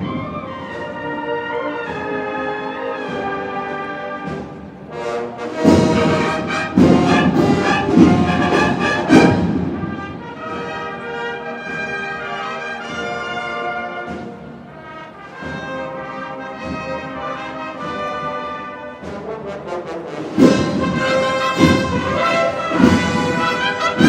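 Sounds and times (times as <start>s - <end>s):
cornets playing: 0.0s - 24.0s
drums playing: 4.2s - 10.8s, 20.4s - 24.0s.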